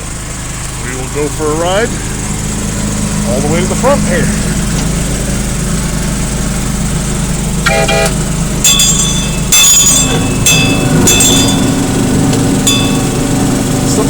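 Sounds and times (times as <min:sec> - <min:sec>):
small locomotive engine running: 0:00.0 - 0:14.0
train horn toot: 0:07.6 - 0:08.2
high-pitched wheel squeals: 0:07.6 - 0:13.7.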